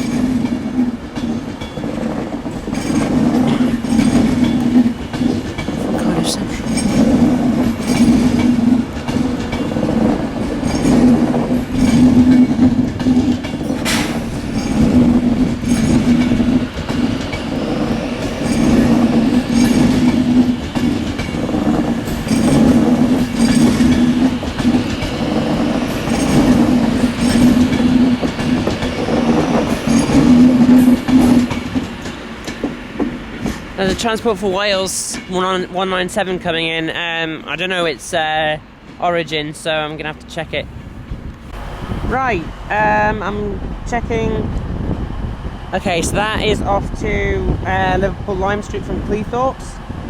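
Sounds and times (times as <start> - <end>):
train wheels clacking over rail joints: 0.0 - 37.9
train low hum: 0.0 - 50.0.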